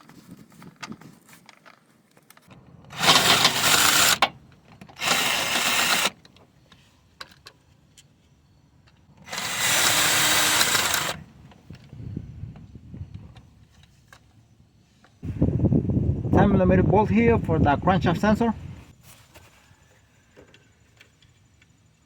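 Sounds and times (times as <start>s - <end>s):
cordless impact wrench bursts: 2.9s - 6.2s, 9.2s - 11.3s.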